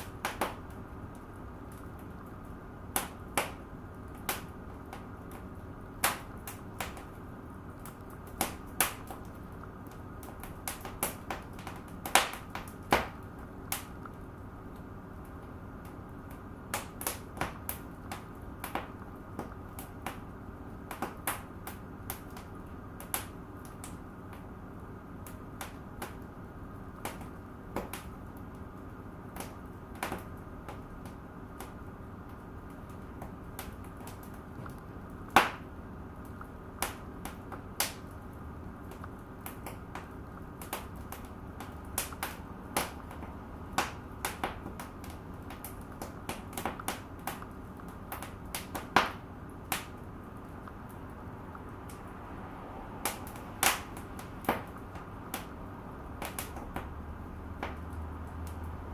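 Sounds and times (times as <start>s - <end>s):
loud pop from fire: 0.0s - 0.8s, 6.0s - 7.1s, 7.8s - 9.3s, 10.2s - 13.9s, 35.3s - 35.7s, 48.1s - 50.0s, 53.0s - 55.6s
fireplace fire crackling: 0.0s - 58.9s.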